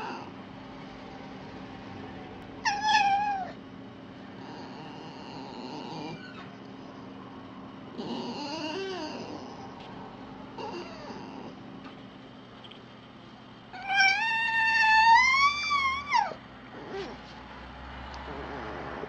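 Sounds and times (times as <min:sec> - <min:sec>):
fox calling: 0:13.8 - 0:16.4.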